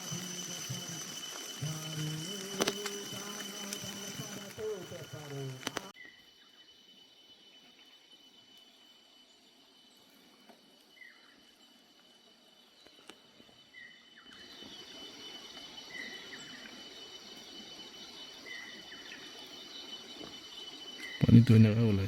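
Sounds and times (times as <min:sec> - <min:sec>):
running water rushing: 0:00.0 - 0:05.9
high insect drone: 0:00.0 - 0:22.0.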